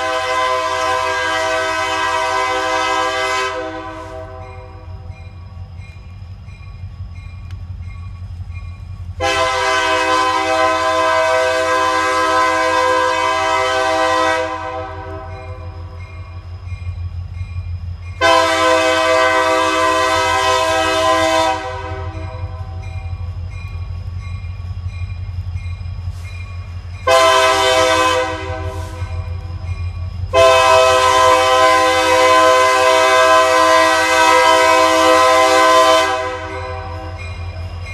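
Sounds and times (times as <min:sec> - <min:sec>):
locomotive air horn: 0:00.0 - 0:04.9, 0:09.2 - 0:15.7, 0:18.2 - 0:22.8, 0:27.0 - 0:29.2, 0:30.3 - 0:37.2
train rumbling past: 0:00.0 - 0:37.9.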